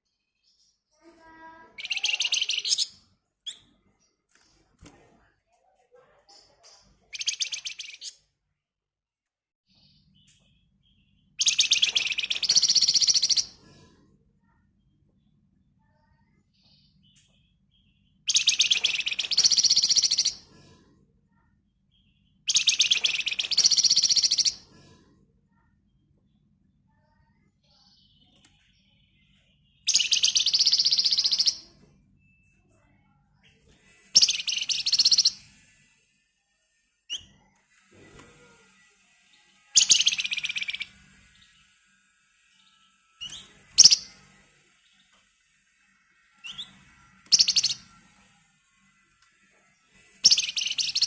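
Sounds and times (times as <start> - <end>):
songbird rattling trills: 1.8 - 2.9, 11.4 - 13.5, 18.3 - 20.4, 22.5 - 24.6, 29.9 - 31.6, 34.2 - 35.5, 39.7 - 41.0, 43.2 - 44.1, 47.3 - 47.8, 50.2 - 51.0.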